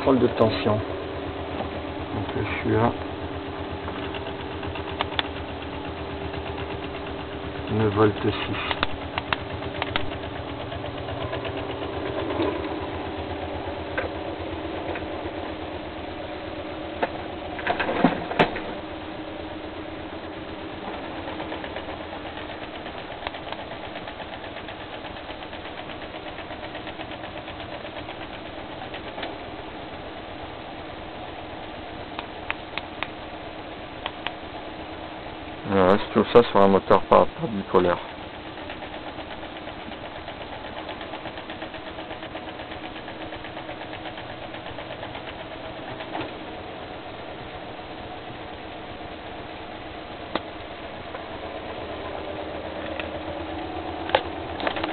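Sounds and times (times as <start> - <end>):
stepper motor humming and ticking: 0.0 - 54.9
sharp clicks: 3.9 - 5.8, 8.2 - 10.3
loud click: 8.6 - 10.2.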